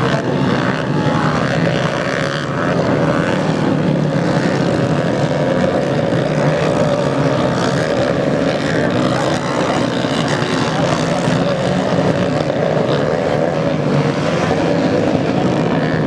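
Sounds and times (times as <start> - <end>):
motocross engines droning: 0.0 - 16.0.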